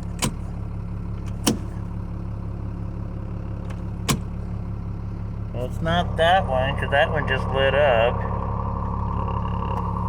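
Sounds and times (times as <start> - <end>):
truck engine running: 0.0 - 10.0
dashboard switches clicking: 0.2 - 0.4, 1.2 - 1.7, 3.6 - 4.3.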